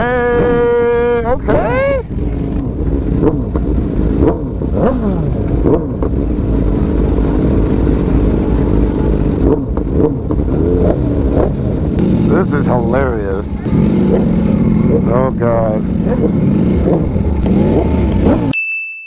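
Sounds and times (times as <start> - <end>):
motorcycles rumbling: 0.0 - 18.5.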